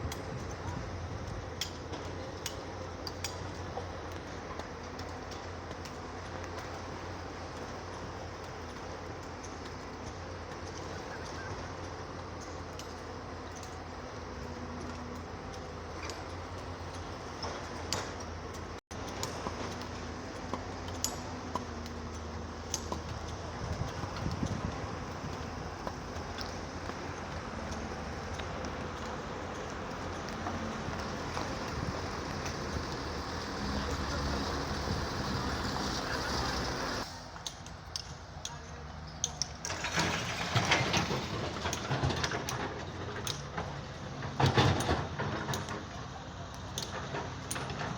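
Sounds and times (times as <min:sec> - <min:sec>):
excavator diesel engine running: 0:00.2 - 0:37.1.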